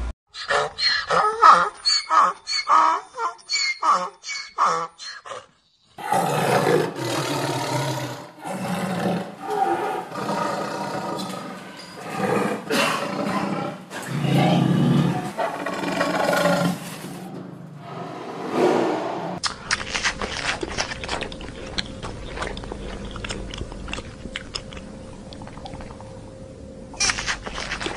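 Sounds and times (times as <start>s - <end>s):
lion roaring: 6.0s - 17.2s.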